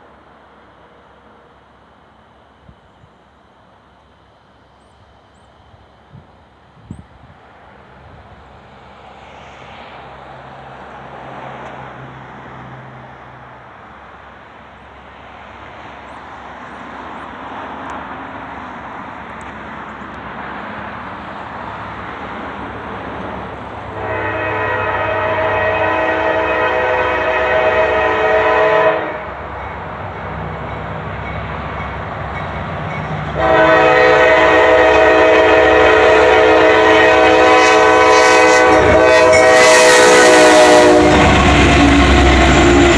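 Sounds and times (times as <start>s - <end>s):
diesel locomotives rumbling: 0.0s - 42.9s
train air horn blasts: 23.9s - 29.8s, 32.9s - 42.9s.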